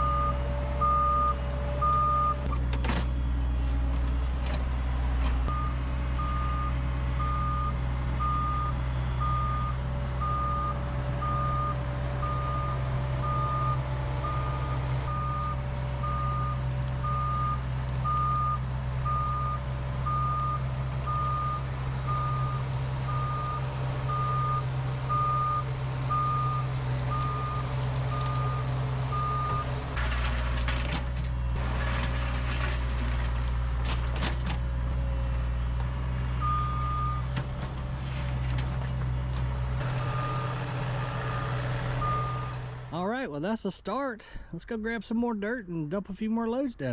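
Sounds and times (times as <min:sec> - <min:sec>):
reverse alarm beeping: 0:00.0 - 0:02.4, 0:05.5 - 0:27.6, 0:35.3 - 0:37.6, 0:41.3 - 0:42.6
diesel engine running: 0:00.0 - 0:43.6
rattling scraping noise: 0:29.9 - 0:34.6.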